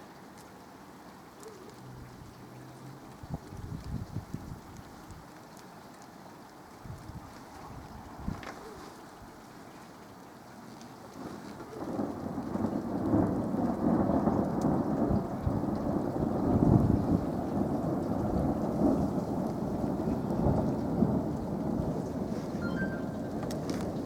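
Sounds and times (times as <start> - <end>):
thunder rolling: 11.7 - 24.0.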